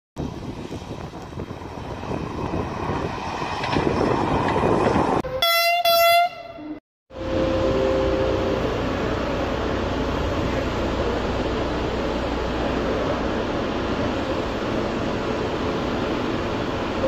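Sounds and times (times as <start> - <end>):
passing train rumble: 0.2 - 17.0
train horn blasts: 5.2 - 8.7.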